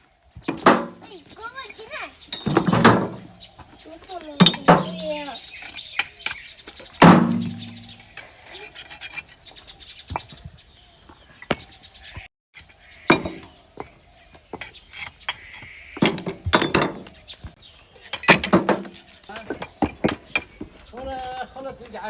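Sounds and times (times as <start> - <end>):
objects knocking and clinking: 2.3 - 3.4, 4.4 - 5.2, 7.0 - 8.0, 16.0 - 17.1, 18.1 - 20.7
loud bang with low ring: 7.0 - 8.0.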